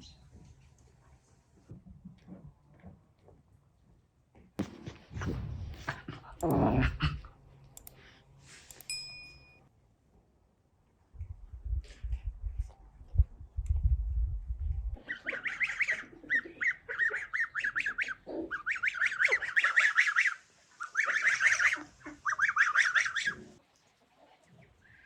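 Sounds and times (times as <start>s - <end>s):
poultry harsh calls: 15.0s - 23.5s.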